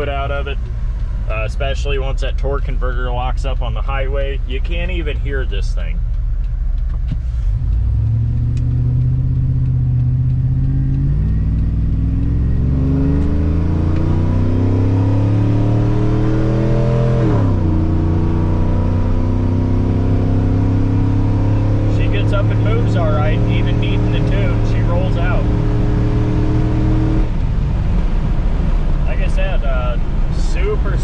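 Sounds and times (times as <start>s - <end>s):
truck engine accelerating: 0.0s - 31.0s.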